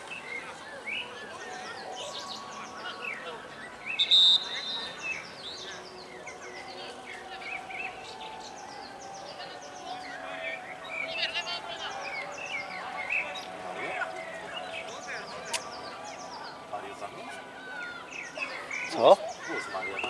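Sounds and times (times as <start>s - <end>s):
small birds chirping: 0.0s - 20.0s
high-pitched whistle-like tone: 3.9s - 5.0s.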